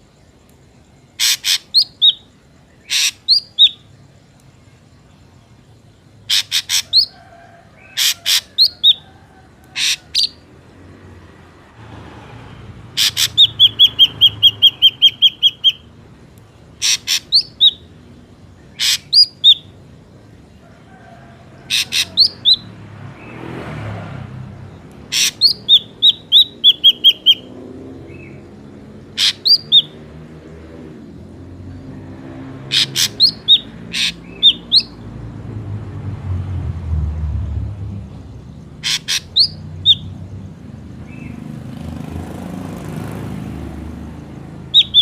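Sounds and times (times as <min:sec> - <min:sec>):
bird calling sharp notes: 0:01.2 - 0:03.9, 0:06.2 - 0:07.2, 0:07.8 - 0:09.1, 0:09.7 - 0:10.5, 0:12.9 - 0:16.0, 0:16.7 - 0:17.9, 0:18.7 - 0:19.8, 0:21.7 - 0:22.7, 0:25.0 - 0:28.4, 0:29.1 - 0:30.0, 0:32.6 - 0:35.0, 0:38.7 - 0:40.2, 0:44.6 - 0:45.0.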